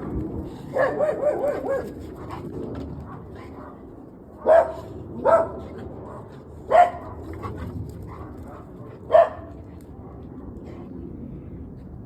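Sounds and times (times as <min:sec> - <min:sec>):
dog barking: 0:00.7 - 0:02.0, 0:04.4 - 0:05.6, 0:06.7 - 0:07.1, 0:08.5 - 0:09.5.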